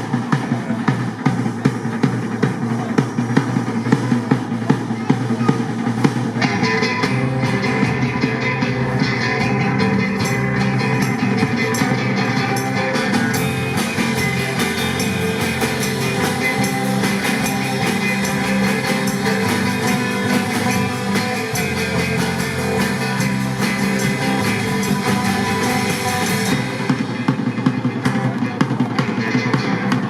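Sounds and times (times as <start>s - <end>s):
drum kit beat: 0.0s - 30.0s
guitar: 0.0s - 30.0s.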